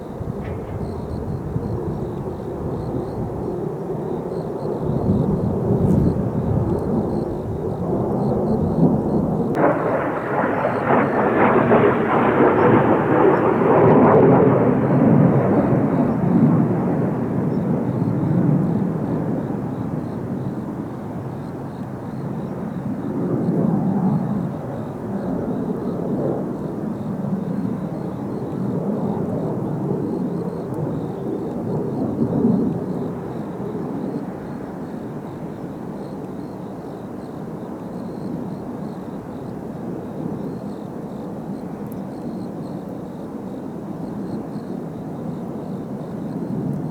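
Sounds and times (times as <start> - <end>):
jet aircraft rumble: 0.0 - 21.4.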